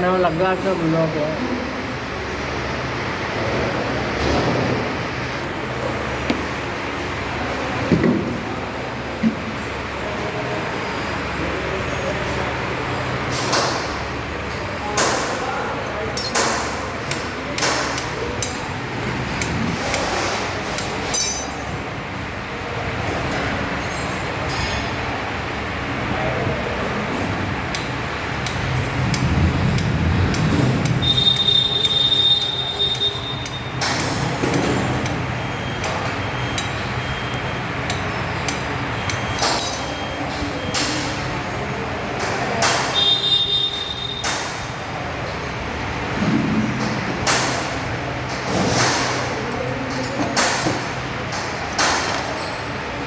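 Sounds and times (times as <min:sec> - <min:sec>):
steady low hum: 0:00.0 - 0:42.5
steady background noise: 0:00.0 - 0:53.0
metal tools clinking: 0:16.2 - 0:16.7, 0:17.6 - 0:21.9, 0:27.7 - 0:41.0.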